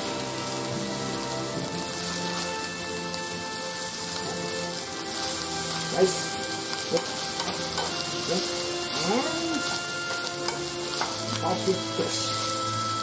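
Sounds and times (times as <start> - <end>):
fried rice sizzling in a pan: 0.0 - 13.0
spatula scraping and tapping pan: 6.9 - 9.0, 9.6 - 11.4.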